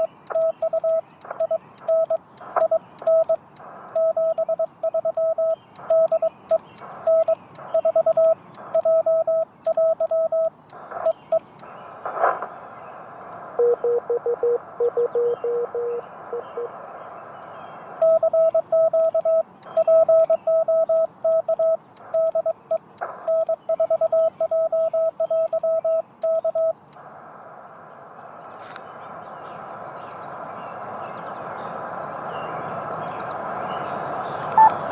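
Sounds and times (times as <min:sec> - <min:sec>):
morse code sidetone beeping: 0:00.0 - 0:11.6, 0:13.6 - 0:16.7, 0:18.0 - 0:26.9, 0:34.6 - 0:34.8
radio receiver hiss: 0:00.0 - 0:17.2, 0:17.8 - 0:29.1.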